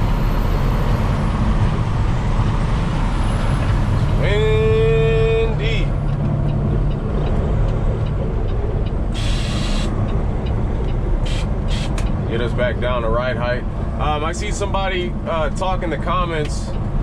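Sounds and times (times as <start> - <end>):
truck engine and road noise: 0.0 - 17.0
air suspension hissing: 9.1 - 10.0, 11.2 - 12.1.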